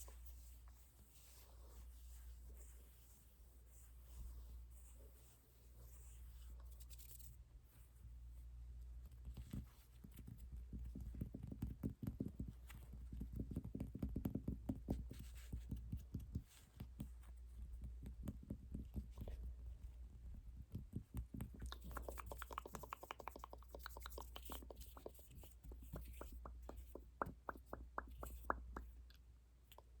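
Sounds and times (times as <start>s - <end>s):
light taps and clicks: 20.6s - 30.0s.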